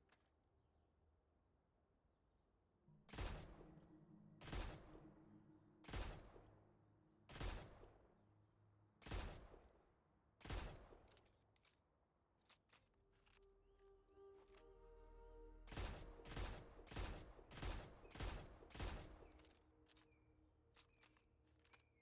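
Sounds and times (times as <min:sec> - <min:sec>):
gunshots with ringing tail: 0:05.8 - 0:06.5, 0:15.7 - 0:19.3.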